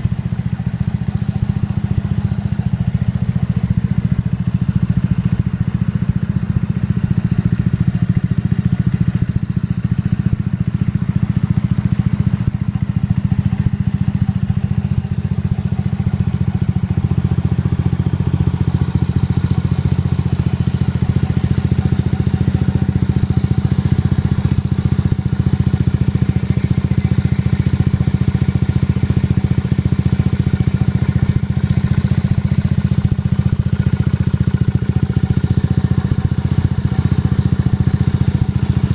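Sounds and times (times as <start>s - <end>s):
scooter engine idling: 0.0s - 38.9s.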